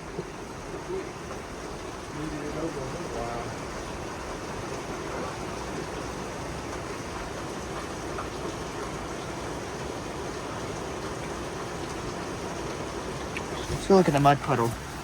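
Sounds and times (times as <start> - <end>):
heavy rain downpour: 0.0 - 15.0.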